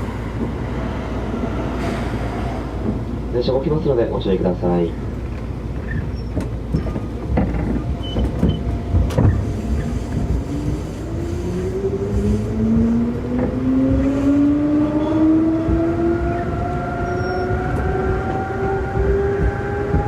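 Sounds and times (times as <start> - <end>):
train clunks: 0.0 - 11.6, 12.2 - 20.0
traction motor whine rising: 11.6 - 20.0.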